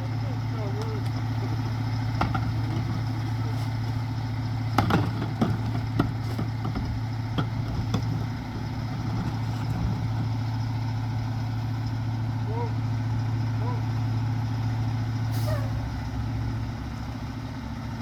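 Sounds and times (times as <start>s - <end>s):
diesel engine idling: 0.0s - 18.0s
sharp knocks and clatters: 1.5s - 3.3s, 4.7s - 10.4s.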